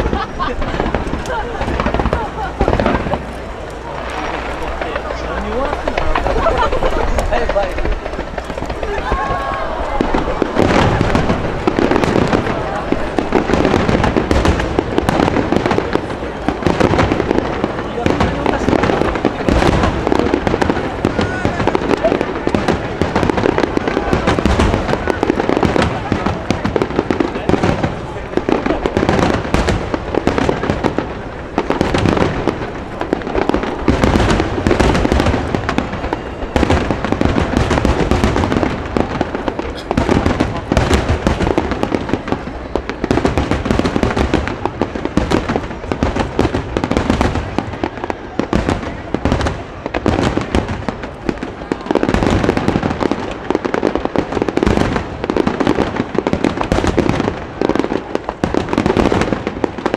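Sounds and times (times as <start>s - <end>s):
firework shells bursting: 0.0s - 47.8s.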